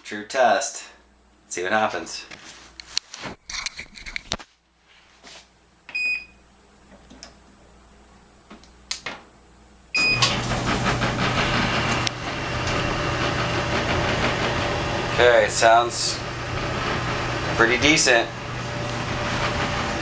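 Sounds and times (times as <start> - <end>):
dryer control panel beep: 5.9 - 6.4, 9.9 - 10.4
dryer drum running hum: 10.0 - 20.0.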